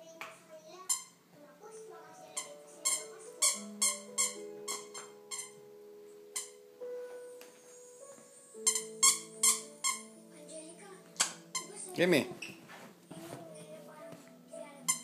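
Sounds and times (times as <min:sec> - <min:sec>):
soft background music: 0:00.0 - 0:15.0
squeaky dog toy squeaking: 0:00.9 - 0:01.2, 0:02.4 - 0:05.6, 0:06.4 - 0:06.6, 0:08.6 - 0:10.2, 0:11.2 - 0:12.6.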